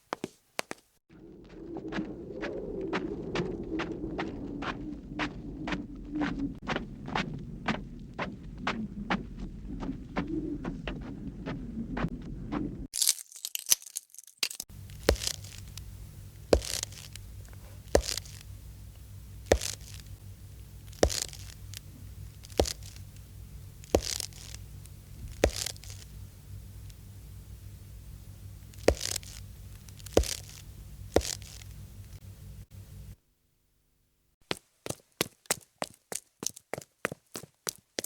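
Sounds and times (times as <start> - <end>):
slow crisp footsteps: 0.0 - 33.2, 34.4 - 38.0
low hum: 1.1 - 12.9, 14.7 - 33.2.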